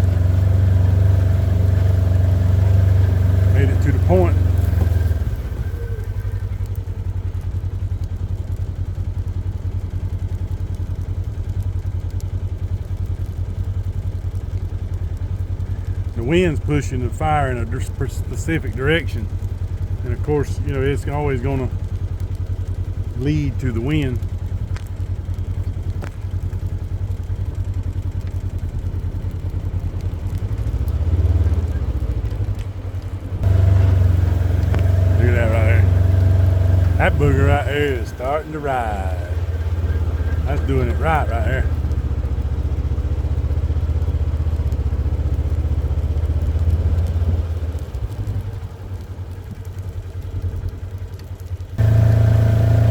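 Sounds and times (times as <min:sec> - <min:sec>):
small vehicle engine running: 0:00.0 - 0:52.9.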